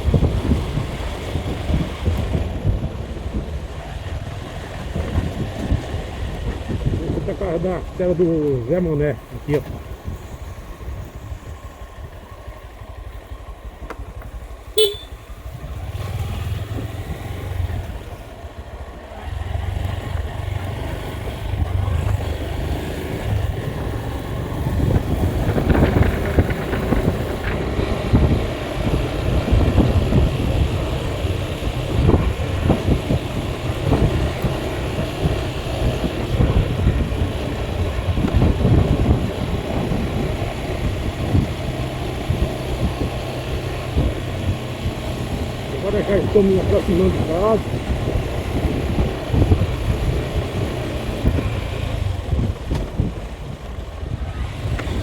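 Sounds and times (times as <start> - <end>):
vehicle engine and road noise: 0.0 - 55.0
horn beep: 14.8 - 15.3.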